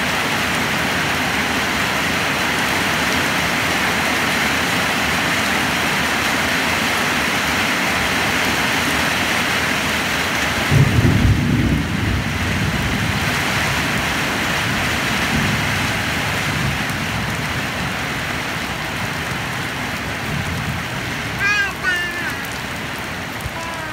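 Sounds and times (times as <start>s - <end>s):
heavy rain falling: 0.0s - 23.9s
low rumble of thunder: 10.7s - 18.0s.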